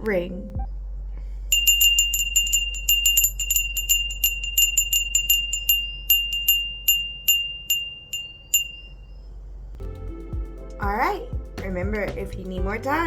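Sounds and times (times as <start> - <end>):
small bell ringing: 1.5 - 9.2.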